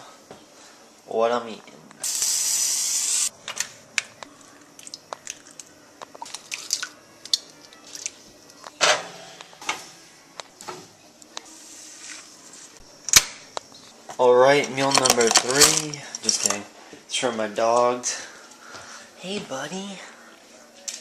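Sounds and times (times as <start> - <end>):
scrapes and rustles: 11.4 - 12.8.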